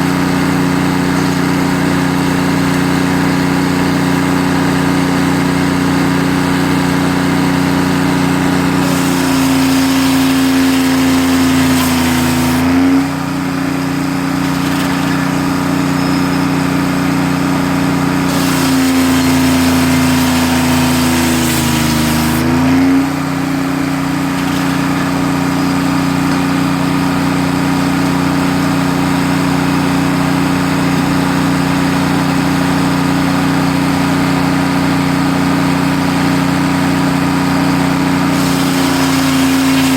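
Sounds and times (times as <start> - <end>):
sawmill machinery humming: 0.0 - 39.9
high hiss: 18.3 - 22.4, 38.3 - 39.9.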